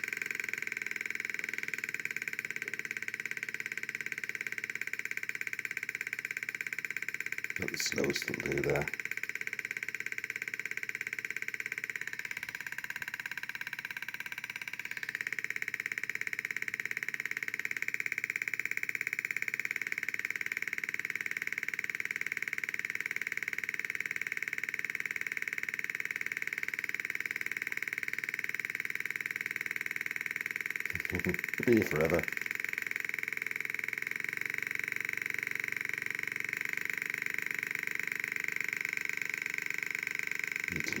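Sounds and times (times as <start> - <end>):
electronic pulsing buzz: 30.7 - 32.6, 40.7 - 41.0.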